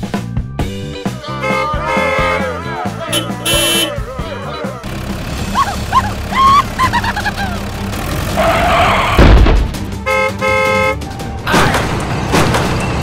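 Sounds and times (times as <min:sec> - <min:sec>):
car horn honking: 0:01.3 - 0:04.5, 0:10.0 - 0:11.0.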